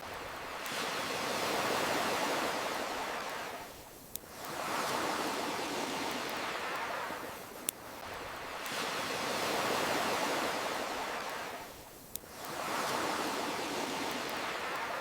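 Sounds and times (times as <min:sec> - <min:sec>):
campfire crackle: 0:00.0 - 0:15.0
ocean waves washing in: 0:00.0 - 0:15.0.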